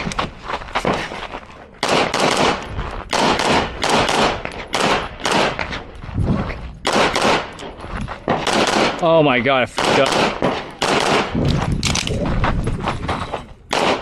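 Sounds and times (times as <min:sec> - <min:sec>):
pistol shots fired rapidly: 0:01.8 - 0:05.6, 0:06.8 - 0:07.5, 0:08.3 - 0:09.0, 0:09.7 - 0:11.4, 0:13.7 - 0:14.0.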